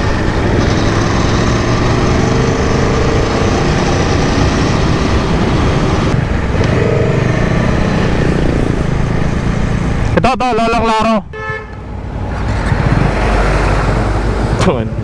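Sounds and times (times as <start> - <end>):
motorcycle engine running: 0.0 - 10.2
road and wind noise: 0.0 - 15.0.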